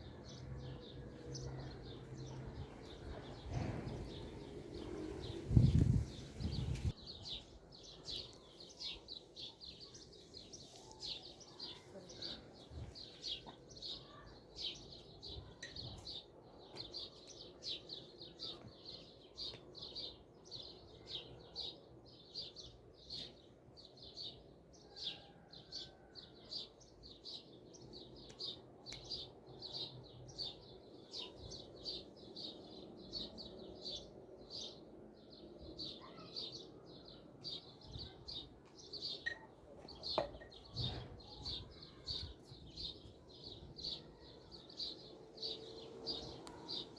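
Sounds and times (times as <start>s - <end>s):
bird chirping: 26.5s - 46.9s.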